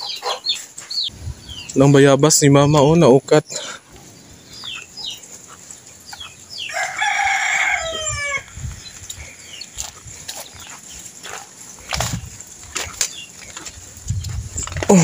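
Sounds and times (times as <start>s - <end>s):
rooster crowing: 6.6s - 8.6s.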